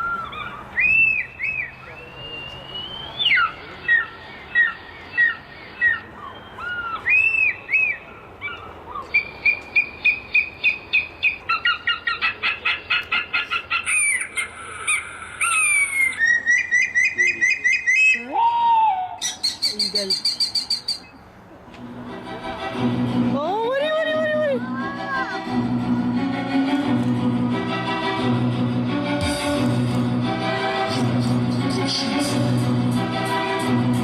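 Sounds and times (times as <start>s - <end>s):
bird chirps and whistles: 0.0s - 8.0s, 13.9s - 18.3s, 19.2s - 21.1s.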